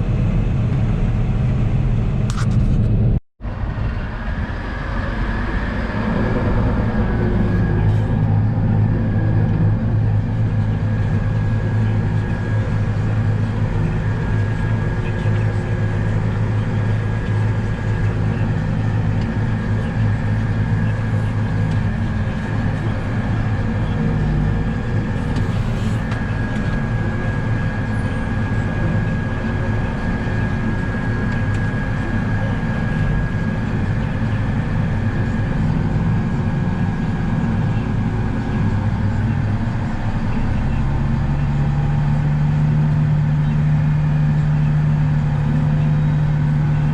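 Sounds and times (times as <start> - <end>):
low engine drone: 0.0 - 46.9
thin high whine: 25.0 - 37.3.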